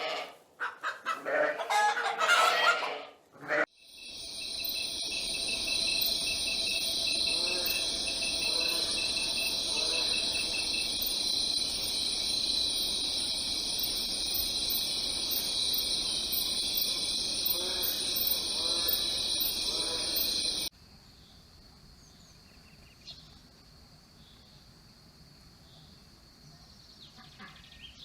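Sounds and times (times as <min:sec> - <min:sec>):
fast pulsing insect chirp: 0:03.7 - 0:20.7
faint low insect calls: 0:03.7 - 0:28.0
insects chirping chorus: 0:03.7 - 0:28.0.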